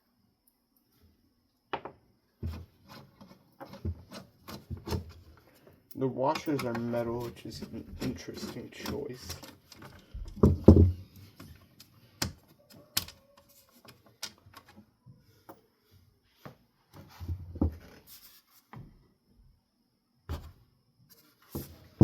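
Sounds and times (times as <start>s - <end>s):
metal parts clicking and knocking: 6.3s - 10.6s.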